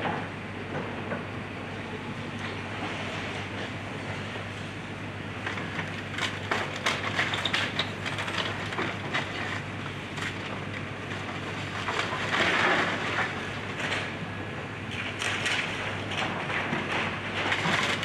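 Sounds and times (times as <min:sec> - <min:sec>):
excavator engine running: 0:00.0 - 0:18.0
wood splintering and cracking: 0:05.4 - 0:14.2, 0:14.9 - 0:18.0.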